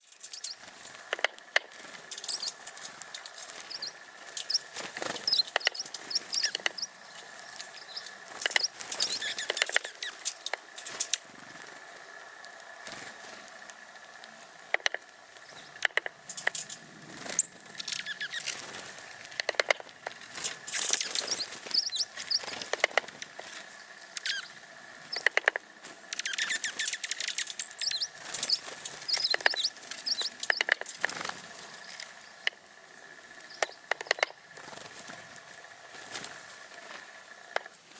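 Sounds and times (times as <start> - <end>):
songbirds chirping and twittering: 0.0 - 37.9
sharp clicks: 0.2 - 11.3, 13.6 - 18.6, 19.2 - 23.4, 25.1 - 32.6, 33.4 - 34.4, 37.5 - 37.8.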